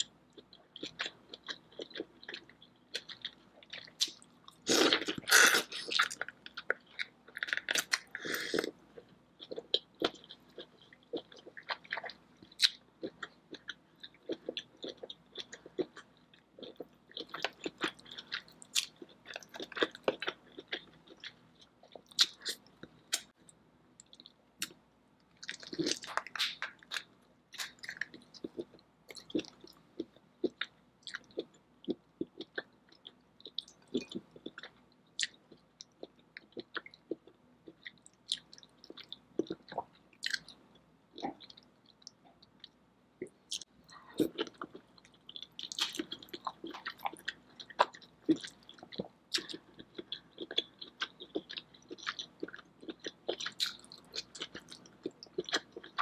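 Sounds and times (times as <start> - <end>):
wet chewing and smacking: 41.2 - 56.0.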